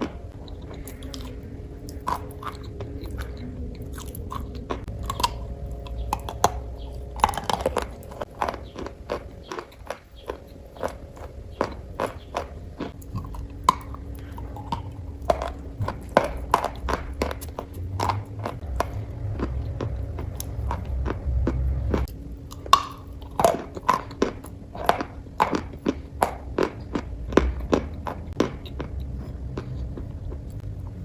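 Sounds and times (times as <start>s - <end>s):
crunching and chewing: 0.0s - 31.0s
low rumble: 0.0s - 31.0s.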